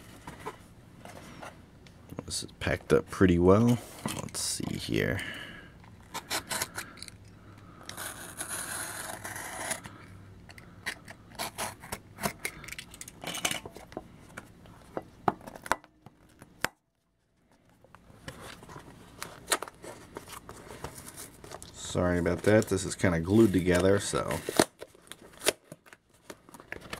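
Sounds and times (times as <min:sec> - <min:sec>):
tape and cardboard tearing: 0:07.8 - 0:09.9, 0:11.0 - 0:12.4, 0:24.3 - 0:26.0.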